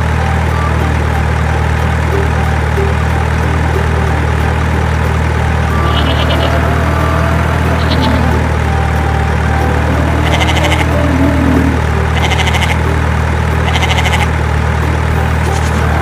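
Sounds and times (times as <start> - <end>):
truck engine humming: 0.0 - 16.0
short bleating call: 5.7 - 6.9, 10.1 - 11.1, 12.2 - 12.8, 13.7 - 14.3.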